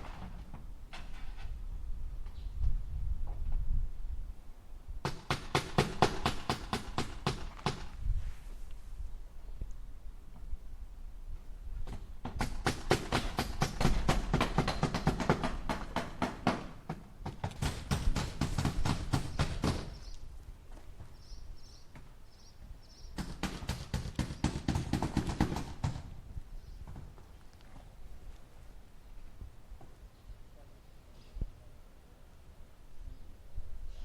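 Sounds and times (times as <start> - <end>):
hammer driving nails into wood: 5.0 - 7.9, 11.9 - 20.0, 23.2 - 26.1.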